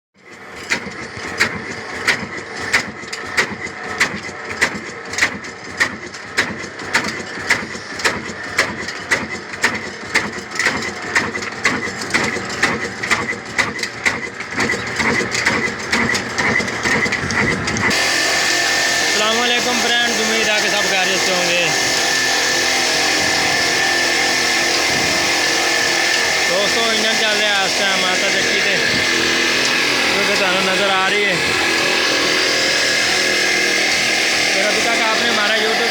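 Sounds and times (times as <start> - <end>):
diesel engine knocking: 0.2 - 22.6.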